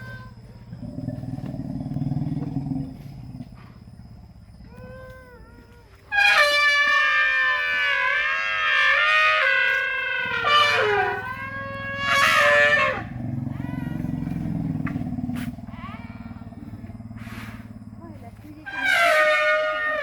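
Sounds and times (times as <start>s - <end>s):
elephants trumpeting: 6.0s - 17.7s, 18.6s - 20.0s.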